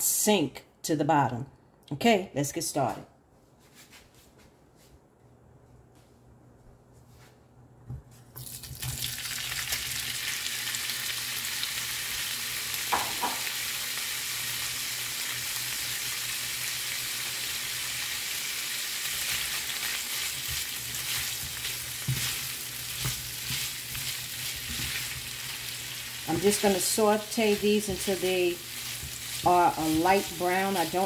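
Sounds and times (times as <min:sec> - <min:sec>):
sausage sizzling in oil: 0:08.4 - 0:31.0.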